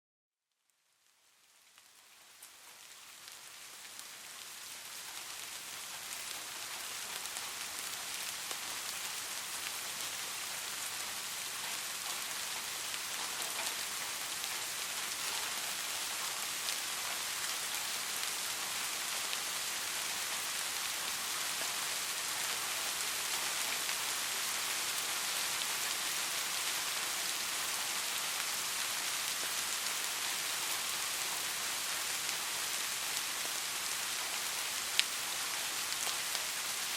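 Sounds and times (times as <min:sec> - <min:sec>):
soft steady rain: 0:00.4 - 0:36.9.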